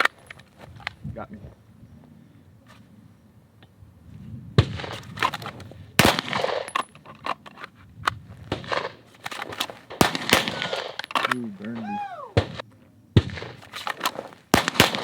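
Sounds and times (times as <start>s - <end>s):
gunshots with echo: 9.9s - 11.0s, 14.5s - 15.0s.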